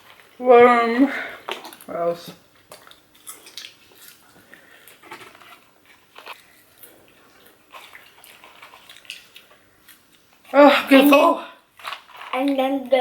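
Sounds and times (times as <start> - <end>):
person chewing food: 2.5 - 10.6, 11.6 - 12.4.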